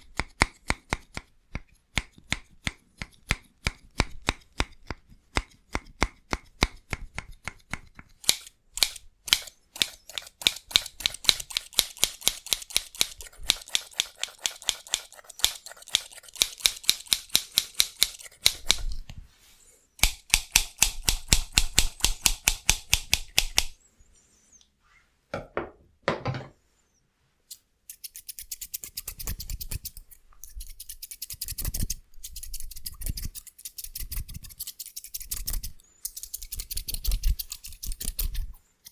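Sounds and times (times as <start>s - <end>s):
scissors snipping: 6.1s - 19.1s, 27.5s - 38.9s.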